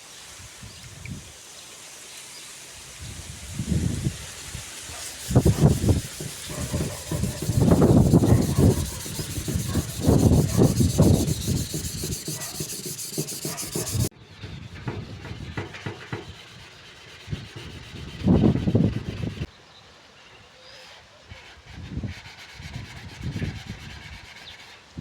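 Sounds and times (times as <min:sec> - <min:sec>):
hand sanding metal panel: 0:05.0 - 0:14.1, 0:14.8 - 0:19.5.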